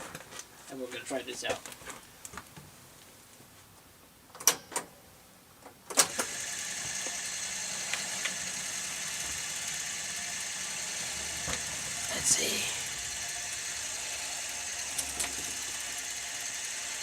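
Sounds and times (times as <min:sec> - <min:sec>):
jukebox mechanism hissing: 0:06.0 - 0:17.0.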